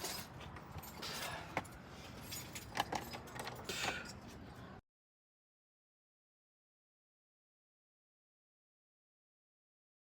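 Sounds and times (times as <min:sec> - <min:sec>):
metal clinking and rattling: 0:00.0 - 0:04.4.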